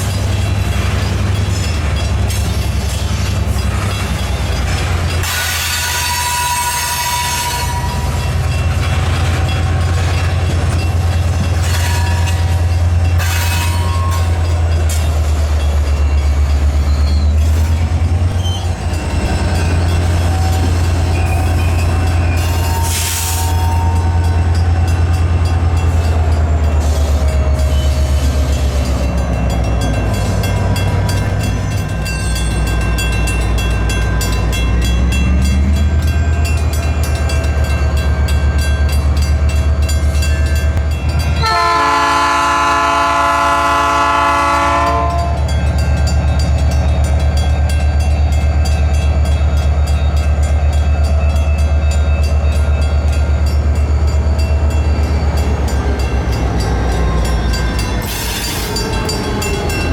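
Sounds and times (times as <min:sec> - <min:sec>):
freight train rumbling past: 0:00.0 - 0:59.9
locomotive horn blast: 0:05.7 - 0:08.1, 0:41.4 - 0:45.5.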